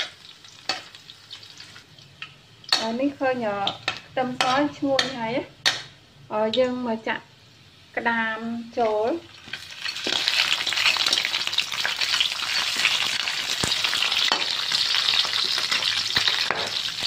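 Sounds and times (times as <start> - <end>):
crab sizzling in hot oil: 0.0 - 17.0.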